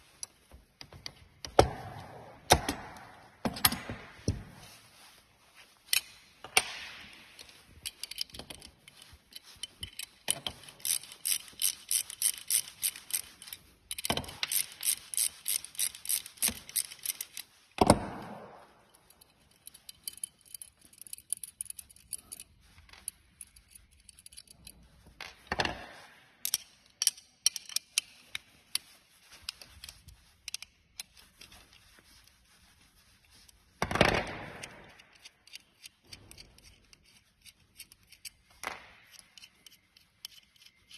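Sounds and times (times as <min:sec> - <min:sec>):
scraping rustling handling noises: 0:04.1 - 0:17.8, 0:18.6 - 0:40.9
ratcheting tool clicking: 0:07.4 - 0:17.5, 0:19.1 - 0:24.8, 0:26.4 - 0:31.7, 0:34.2 - 0:40.9.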